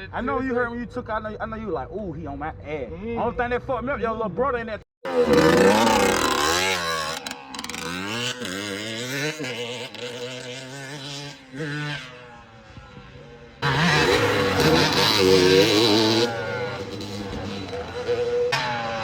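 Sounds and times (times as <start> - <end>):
dirt bike engines revving: 5.1 - 19.0.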